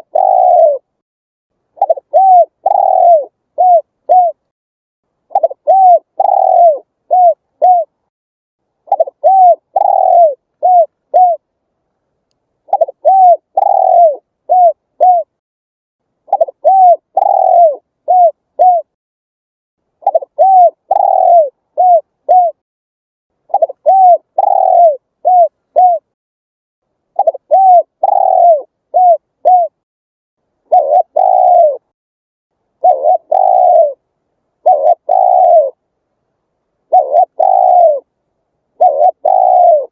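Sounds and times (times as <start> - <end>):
dove cooing: 0.0 - 1.0, 1.8 - 4.5, 5.3 - 8.0, 8.9 - 11.5, 12.7 - 15.3, 16.3 - 19.0, 20.0 - 22.6, 23.5 - 26.1, 27.2 - 29.8, 30.7 - 31.9, 32.8 - 34.0, 34.6 - 35.8, 36.9 - 38.1, 38.7 - 39.9.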